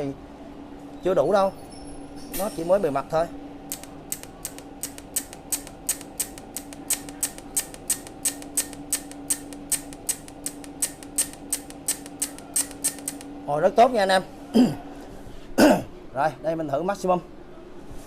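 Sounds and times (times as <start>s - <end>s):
welder machine hum: 2.4s - 14.0s
welder arc starter clicking: 3.7s - 13.3s.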